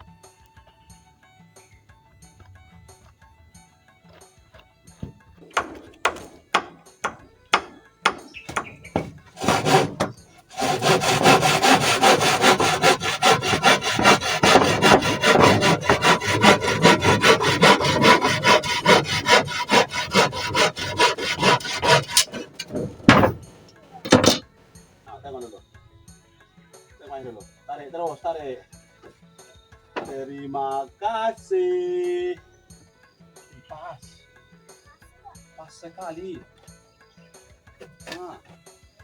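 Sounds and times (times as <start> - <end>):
hand saw cutting wood: 5.0 - 24.5.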